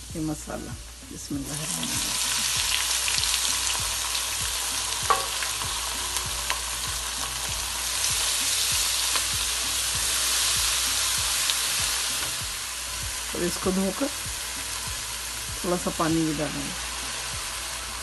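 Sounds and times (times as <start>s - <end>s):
spices sizzling in hot oil: 0.0s - 18.0s
spatula stirring and tapping pan: 5.0s - 5.7s.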